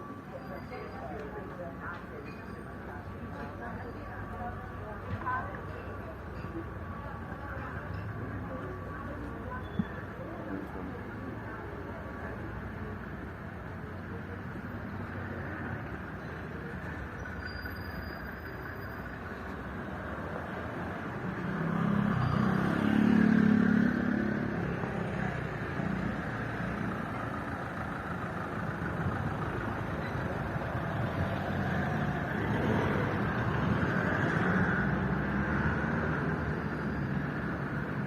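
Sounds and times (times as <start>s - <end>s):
background street rumble: 0.0s - 38.0s
motor vehicle passing: 20.4s - 38.0s.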